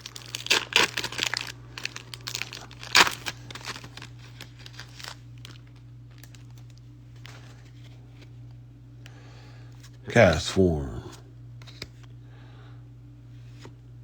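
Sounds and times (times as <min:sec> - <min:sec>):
foil wrapper crinkling: 0:00.0 - 0:06.8
steady low hum: 0:09.1 - 0:11.4.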